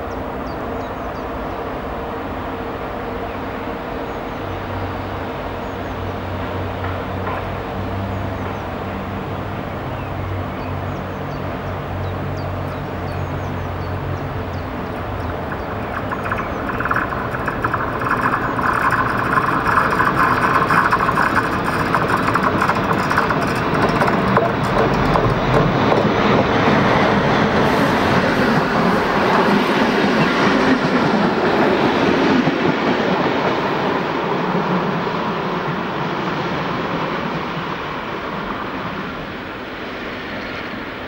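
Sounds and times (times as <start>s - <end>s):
train wheels rattling on rail: 4.4s - 10.0s, 11.0s - 40.3s
steady low hum: 14.2s - 26.3s.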